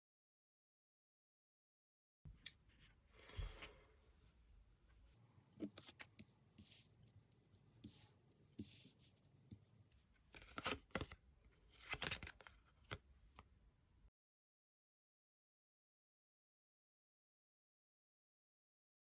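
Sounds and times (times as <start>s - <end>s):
cards rustling and sliding: 5.6s - 9.6s, 10.3s - 13.0s.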